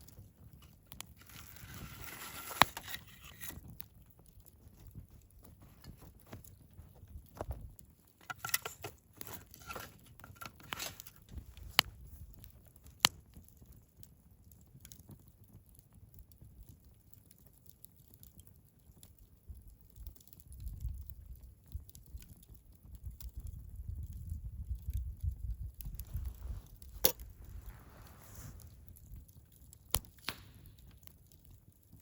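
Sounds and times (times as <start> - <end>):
wood fire crackling: 0.0 - 32.0
sharp pops: 29.9 - 31.2.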